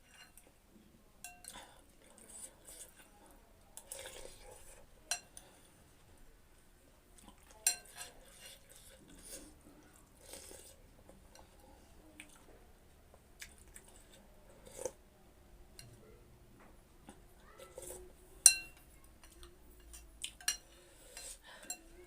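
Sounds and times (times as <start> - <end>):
utensils clinking against bowl: 7.6 - 8.8, 17.8 - 21.9.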